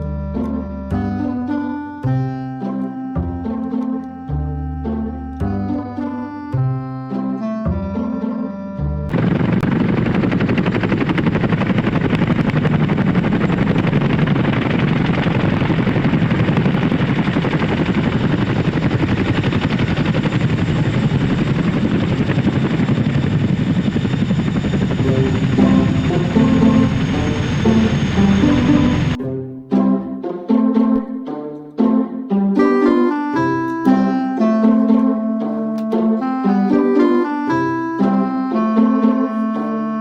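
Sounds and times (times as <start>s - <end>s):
music with pitched notes: 0.0s - 9.2s, 24.9s - 40.0s
fast mechanical chopping noise: 9.1s - 21.9s.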